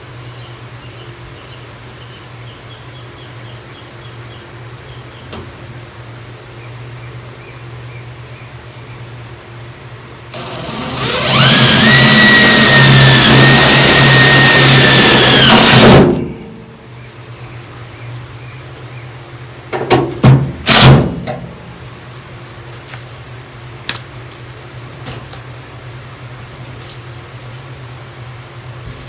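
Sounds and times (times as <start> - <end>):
power tool running: 10.3 - 16.8, 20.7 - 20.9.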